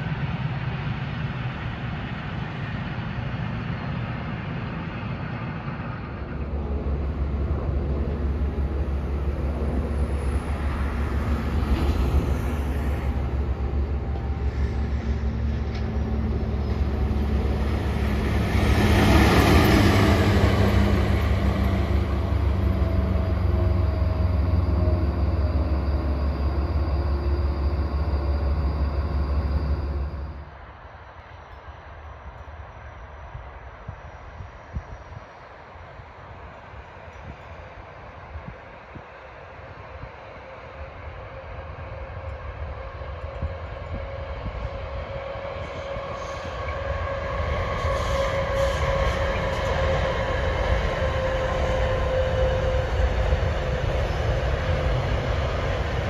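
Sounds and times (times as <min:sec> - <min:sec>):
train wheels rolling over rails: 0:06.3 - 0:30.4.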